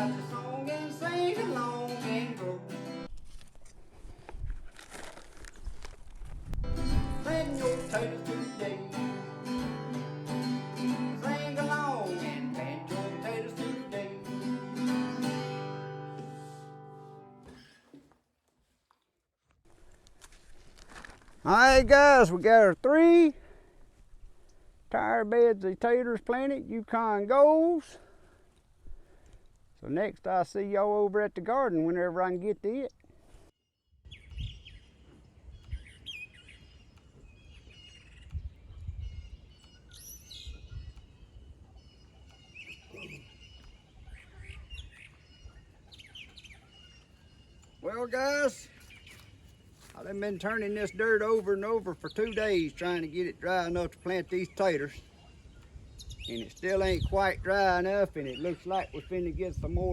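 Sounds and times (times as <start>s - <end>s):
songbirds chirping and singing: 0.0s - 3.0s, 6.8s - 16.6s, 34.0s - 59.9s.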